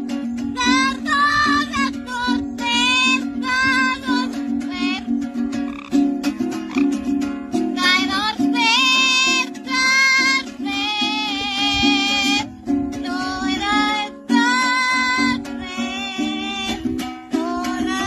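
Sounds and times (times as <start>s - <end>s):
ukulele music: 0.0s - 18.0s
parrot singing: 5.6s - 6.0s, 6.6s - 7.0s.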